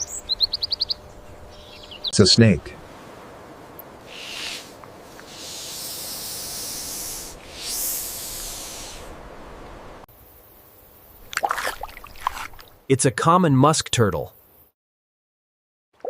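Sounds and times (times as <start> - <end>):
snake hissing: 4.0 - 9.3.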